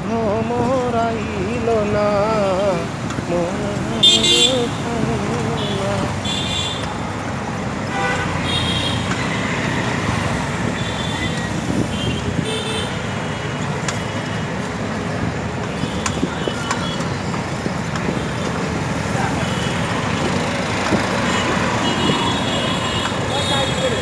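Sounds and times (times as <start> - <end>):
busy road traffic: 0.0 - 24.0
vehicle horn toots: 4.0 - 4.7, 5.6 - 6.9, 7.9 - 9.6, 21.2 - 24.0.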